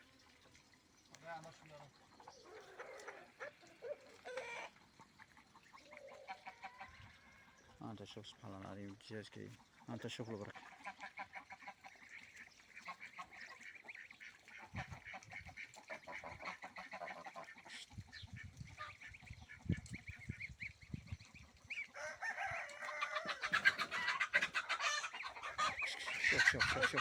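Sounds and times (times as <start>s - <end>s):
ducks calling: 1.6s - 8.5s, 9.6s - 27.0s
chickens calling: 2.0s - 7.8s, 14.6s - 27.0s.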